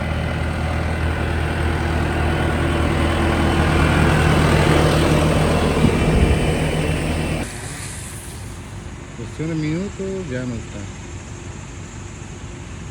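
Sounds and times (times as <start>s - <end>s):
low thumps: 0.0s - 7.4s
engine running steadily: 0.0s - 10.2s.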